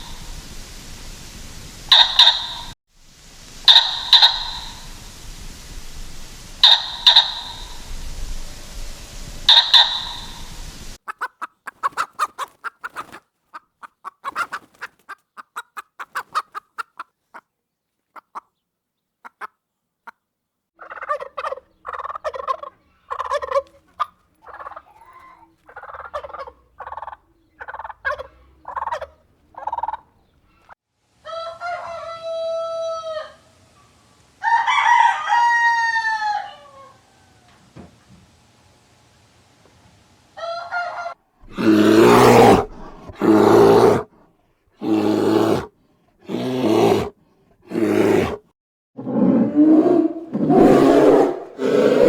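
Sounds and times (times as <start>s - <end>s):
chickens clucking: 1.9s - 2.7s, 3.6s - 5.1s, 6.6s - 17.5s, 18.1s - 18.6s, 19.2s - 20.2s, 20.8s - 33.9s
rooster crowing: 31.2s - 33.5s, 34.4s - 37.6s, 40.4s - 41.2s.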